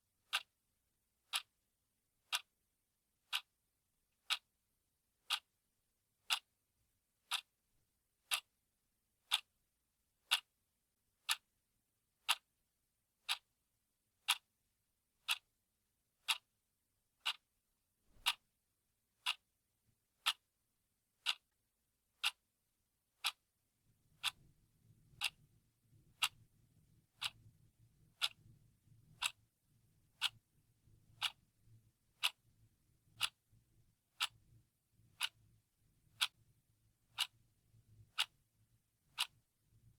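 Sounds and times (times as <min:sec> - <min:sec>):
clock ticking: 0:00.3 - 0:00.6, 0:01.2 - 0:01.6, 0:02.2 - 0:02.5, 0:03.2 - 0:03.6, 0:04.2 - 0:04.5, 0:05.2 - 0:05.6, 0:06.2 - 0:06.6, 0:07.2 - 0:07.5, 0:08.2 - 0:08.6, 0:09.2 - 0:09.5, 0:10.2 - 0:10.5, 0:11.2 - 0:11.5, 0:12.2 - 0:12.5, 0:13.2 - 0:13.5, 0:14.2 - 0:14.5, 0:15.2 - 0:15.5, 0:16.2 - 0:16.5, 0:17.2 - 0:17.5, 0:18.1 - 0:18.5, 0:19.2 - 0:19.5, 0:20.2 - 0:20.5, 0:21.2 - 0:21.6, 0:22.2 - 0:22.5, 0:23.2 - 0:23.5, 0:24.1 - 0:24.5, 0:25.1 - 0:29.4, 0:30.1 - 0:32.5, 0:33.2 - 0:34.5, 0:35.1 - 0:35.5, 0:36.1 - 0:36.4, 0:37.0 - 0:38.4, 0:39.1 - 0:39.8.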